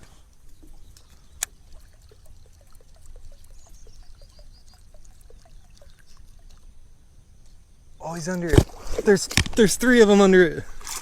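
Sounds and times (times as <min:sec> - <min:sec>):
water dripping and trickling: 0:00.3 - 0:06.9.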